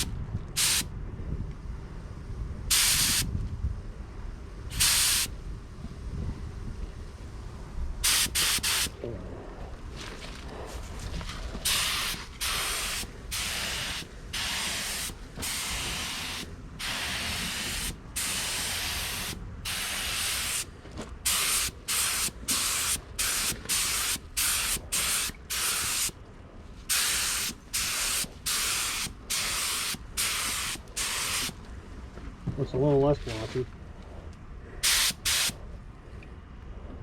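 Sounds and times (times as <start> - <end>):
paint spray gun hissing in bursts: 0.0 - 0.9, 2.7 - 3.3, 4.7 - 5.3, 8.0 - 9.0, 11.6 - 20.7, 21.3 - 26.2, 26.9 - 31.6, 34.8 - 35.6.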